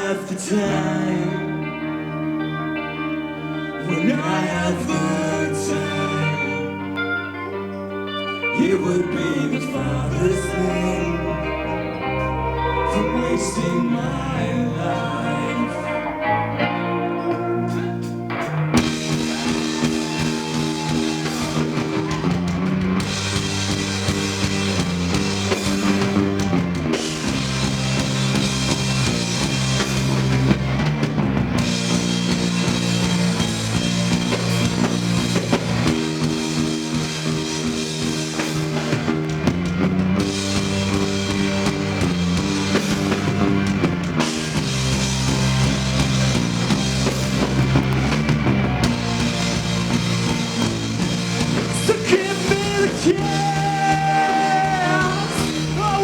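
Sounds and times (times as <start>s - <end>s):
rock band playing instrumental: 0.0s - 56.0s.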